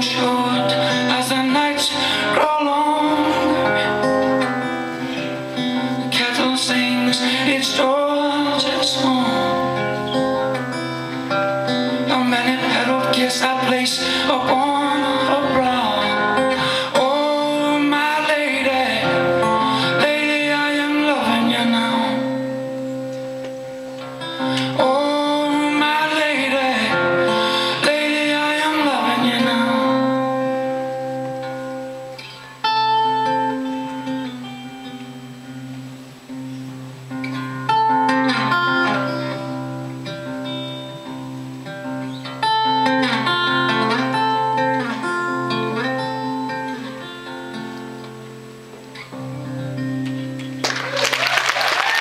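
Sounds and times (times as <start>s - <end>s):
person singing: 0.0s - 35.1s
acoustic guitar chords: 0.0s - 50.9s.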